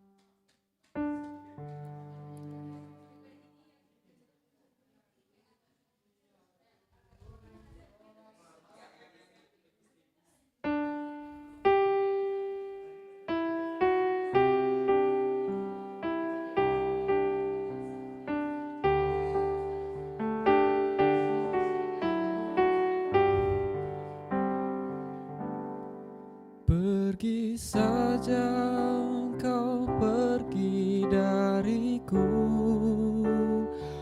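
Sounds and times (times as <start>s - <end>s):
piano chords: 1.0s - 3.3s, 10.7s - 34.0s.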